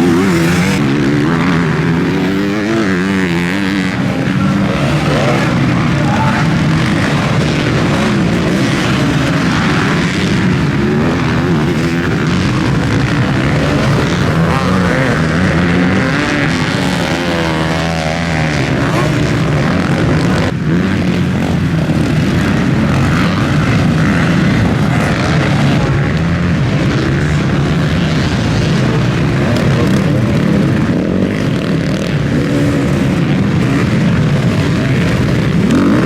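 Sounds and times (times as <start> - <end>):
motocross bike engines racing: 0.0 - 36.0.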